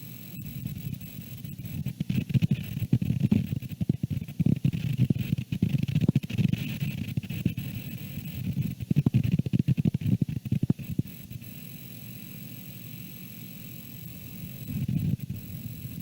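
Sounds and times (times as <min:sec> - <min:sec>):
pops and crackles: 0:08.5 - 0:10.8.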